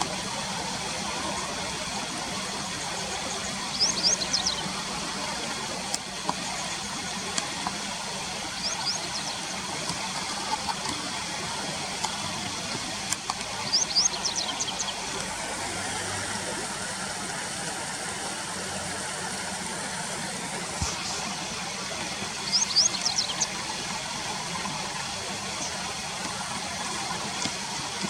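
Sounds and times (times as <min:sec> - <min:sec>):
river water rushing: 0:00.0 - 0:28.0
bird chirping: 0:03.7 - 0:04.7, 0:13.6 - 0:15.0, 0:22.4 - 0:23.5.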